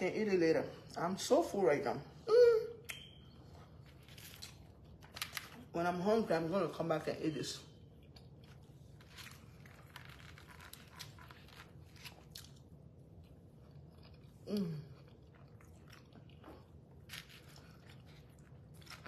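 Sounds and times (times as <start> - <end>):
person chewing: 7.9 - 19.0.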